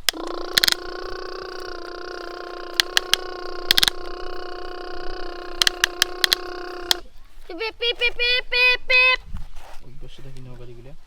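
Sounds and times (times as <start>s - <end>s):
sharp mechanical clicks: 0.0s - 7.1s
small electric motor whirring: 0.0s - 8.3s.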